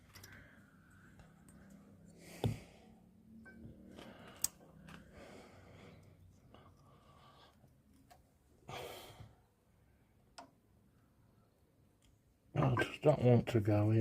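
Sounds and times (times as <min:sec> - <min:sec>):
person breathing: 0:00.1 - 0:03.2, 0:03.8 - 0:07.8, 0:08.6 - 0:09.9.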